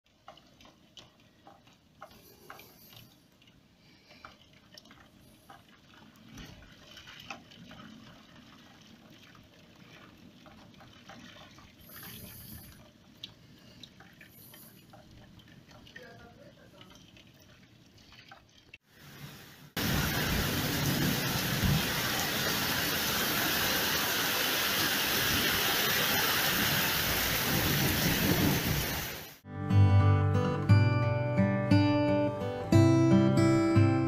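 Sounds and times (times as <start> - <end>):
drips and taps: 0.1 - 18.8
heavy rain falling: 19.0 - 29.4.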